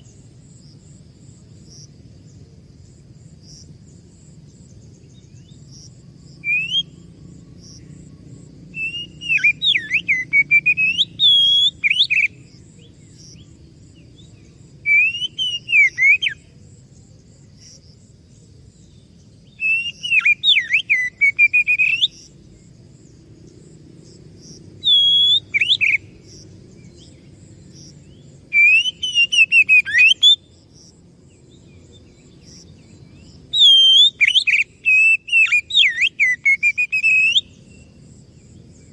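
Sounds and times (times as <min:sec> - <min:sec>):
bird singing whistled phrases: 0:06.4 - 0:07.0, 0:08.8 - 0:12.4, 0:14.9 - 0:16.4, 0:19.5 - 0:22.3, 0:24.8 - 0:26.1, 0:28.5 - 0:30.4, 0:33.5 - 0:37.9.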